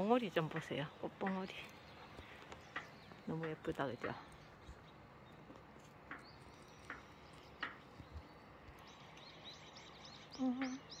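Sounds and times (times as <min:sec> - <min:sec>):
faint small bird chirps: 0:01.4 - 0:11.0.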